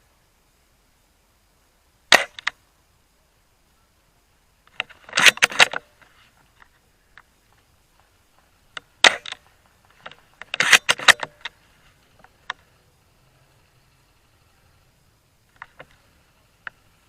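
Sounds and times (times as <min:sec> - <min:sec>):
sharp clicks and rattles: 0:04.7 - 0:12.8.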